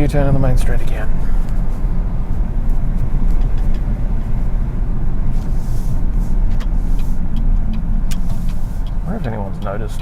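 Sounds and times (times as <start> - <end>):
car engine rumble: 0.0 - 10.0
road noise: 0.0 - 10.0.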